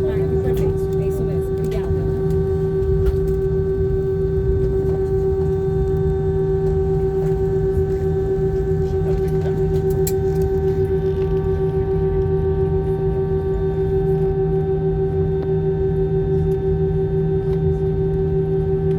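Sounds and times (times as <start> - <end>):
aircraft engines droning: 0.0 - 18.9.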